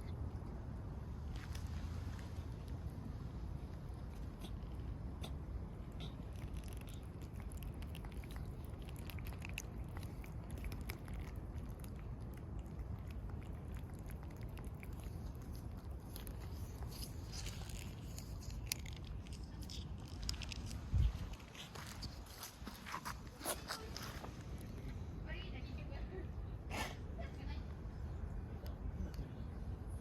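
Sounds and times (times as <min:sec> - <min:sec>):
cat crunching food: 0:03.5 - 0:25.0.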